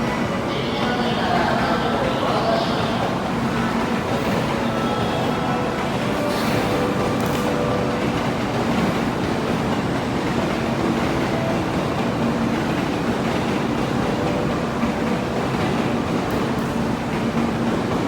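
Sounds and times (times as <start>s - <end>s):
train rushing and rumbling: 0.0s - 18.0s.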